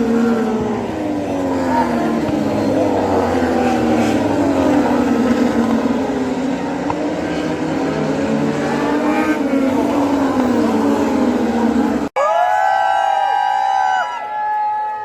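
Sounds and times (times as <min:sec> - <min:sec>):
racing motorcycle engines: 0:00.0 - 0:12.1.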